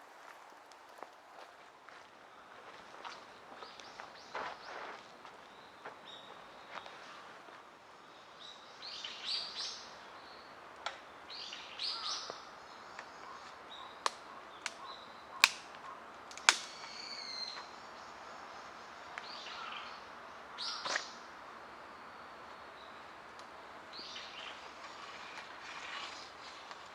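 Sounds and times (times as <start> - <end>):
sharp cracks: 15.4 - 16.9.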